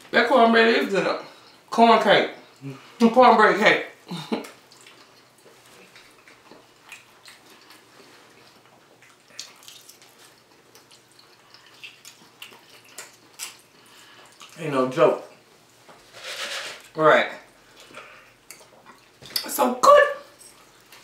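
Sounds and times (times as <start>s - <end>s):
wet chewing: 4.3s - 15.8s, 17.6s - 19.4s.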